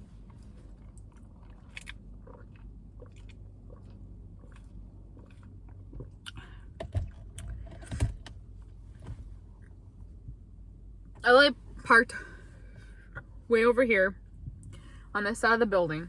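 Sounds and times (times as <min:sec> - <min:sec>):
person chewing crunchy salad: 0:00.0 - 0:07.6.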